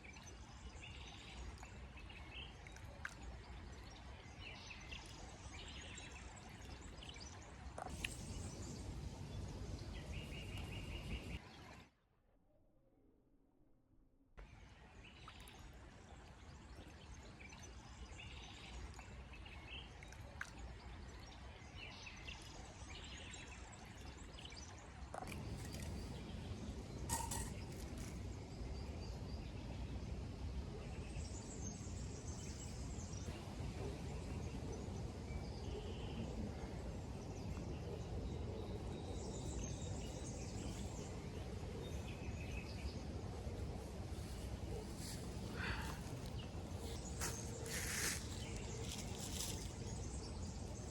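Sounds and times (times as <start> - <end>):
low rumble of outdoor noise: 0.0 - 11.9, 14.4 - 50.9
birds chirping: 37.0 - 50.9.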